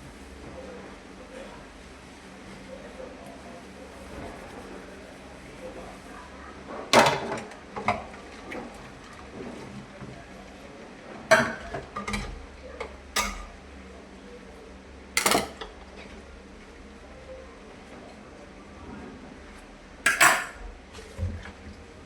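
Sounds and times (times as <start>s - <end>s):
dishes and utensils clattering: 13.2s - 13.5s, 15.2s - 15.7s, 20.1s - 20.6s.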